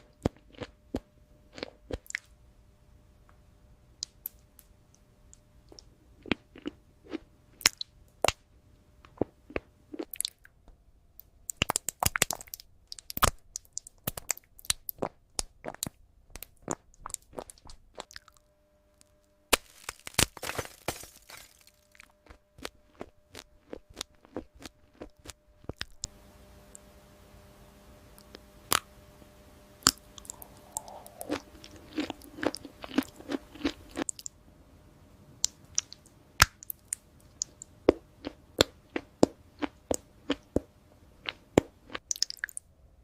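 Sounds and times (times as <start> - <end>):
crisp crunching and chewing: 0.0 - 0.8, 19.5 - 26.1, 29.9 - 34.3.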